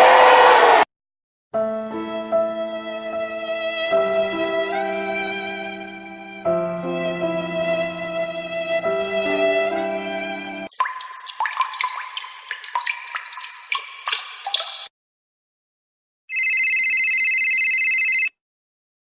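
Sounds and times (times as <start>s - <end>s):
water drips and plops: 10.7s - 14.9s
electronic telephone ring: 16.3s - 18.4s.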